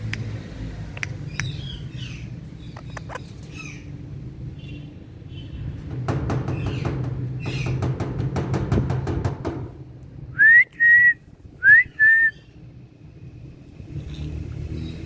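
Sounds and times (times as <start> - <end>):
sharp clicks: 0.9 - 1.6, 2.8 - 3.3
parakeet chirping: 1.3 - 3.9.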